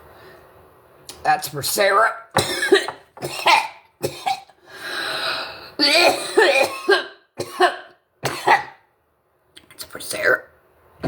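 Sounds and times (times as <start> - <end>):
person coughing: 2.4 - 4.6, 5.8 - 8.8.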